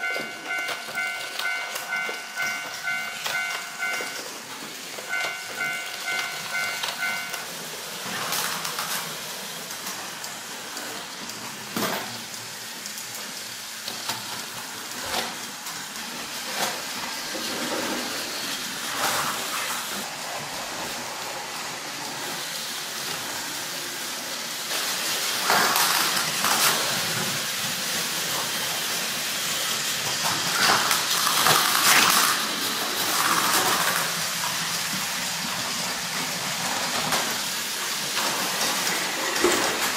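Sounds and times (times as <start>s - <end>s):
pulsed electronic beeping: 0.0s - 4.2s, 5.1s - 7.4s
toy train motors whirring: 0.0s - 39.9s.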